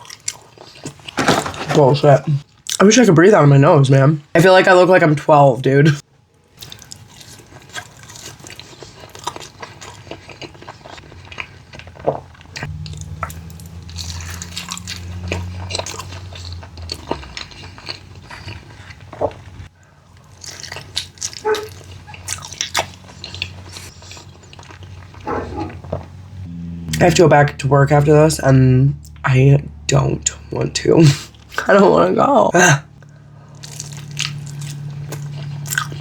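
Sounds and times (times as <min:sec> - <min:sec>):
chewing and biting food: 0:00.0 - 0:01.8, 0:06.5 - 0:26.2, 0:33.0 - 0:36.0.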